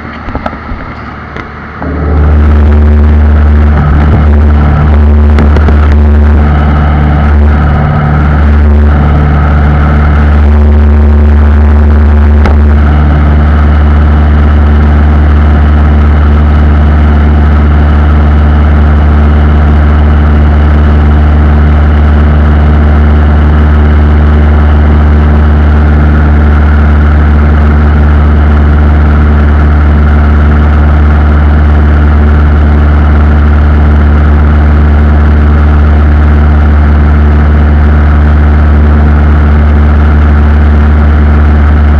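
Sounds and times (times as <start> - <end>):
aircraft engines humming: 0.0 - 14.7.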